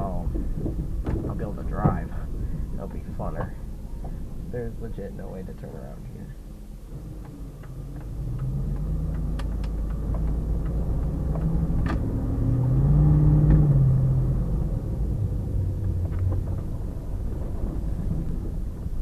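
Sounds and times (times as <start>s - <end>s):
truck engine rumbling: 0.0s - 19.0s
knocks and rattles: 0.2s - 2.1s.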